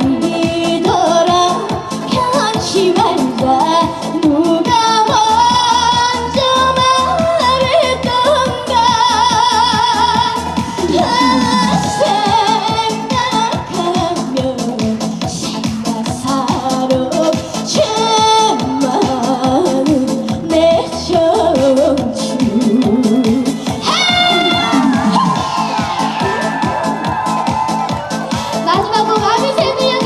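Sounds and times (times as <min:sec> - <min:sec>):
woman singing with vibrato: 0:00.0 - 0:15.6, 0:16.2 - 0:25.6
band with dance beat: 0:00.0 - 0:30.0.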